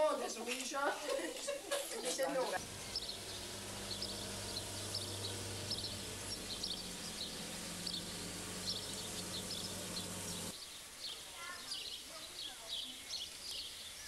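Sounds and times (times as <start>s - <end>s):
songbirds chirping: 0.0s - 14.0s
steady low hum: 2.6s - 10.5s.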